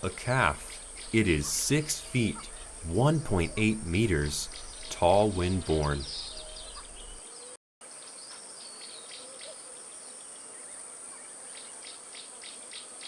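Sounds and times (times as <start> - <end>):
faint high chirps: 0.0 - 7.2
insects chirring: 0.0 - 7.2.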